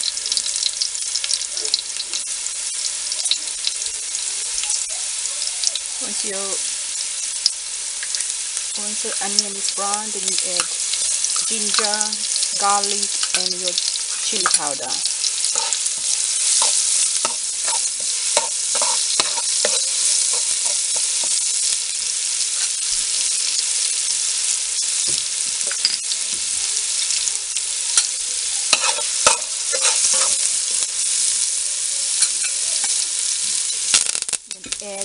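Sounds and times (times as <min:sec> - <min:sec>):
onions sizzling in hot oil: 0:00.0 - 0:35.0
metal spoon scraping pot: 0:13.2 - 0:21.4, 0:28.7 - 0:30.4.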